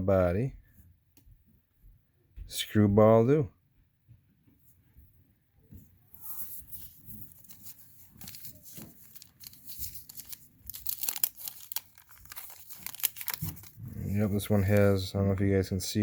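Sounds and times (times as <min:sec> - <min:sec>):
wax paper wrapper crinkling: 0:06.1 - 0:15.1.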